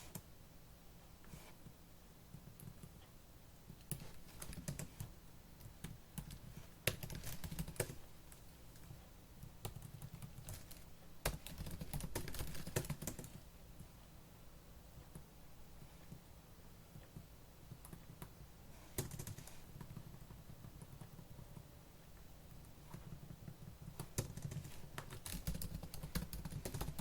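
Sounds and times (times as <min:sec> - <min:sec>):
fast typing on laptop keyboard: 0:03.7 - 0:13.5, 0:16.9 - 0:21.7, 0:22.5 - 0:27.0.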